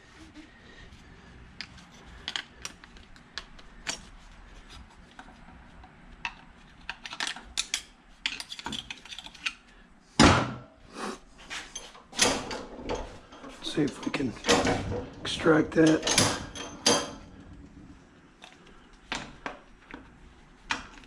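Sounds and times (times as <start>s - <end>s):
metal tools clinking on workbench: 15.7s - 17.2s.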